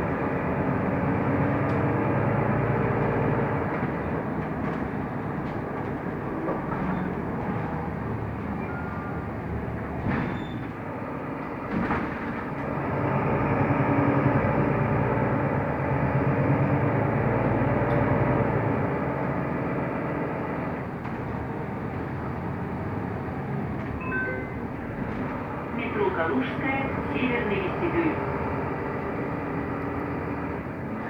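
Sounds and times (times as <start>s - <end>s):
bus engine running: 0.0s - 31.0s
bus body knocks: 9.9s - 10.8s, 11.5s - 12.6s.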